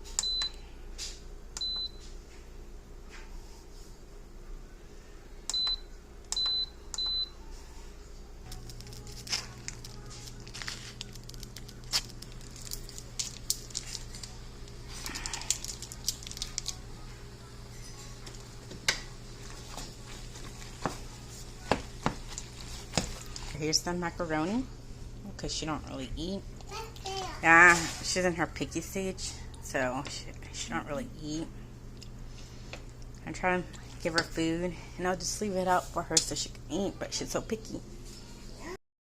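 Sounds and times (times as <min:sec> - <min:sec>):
rice steamer humming: 0:09.6 - 0:23.6.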